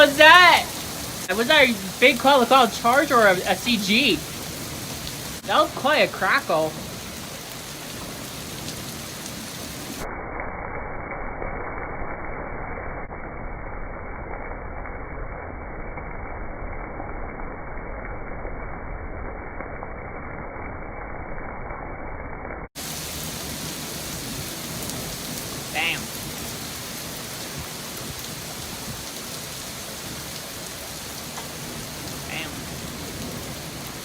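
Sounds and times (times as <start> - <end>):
steady rain hiss: 0.0 - 22.0, 22.8 - 34.0.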